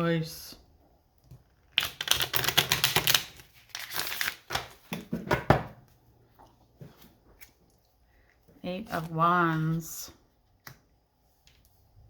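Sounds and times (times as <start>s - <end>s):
cards being shuffled: 1.8s - 4.9s.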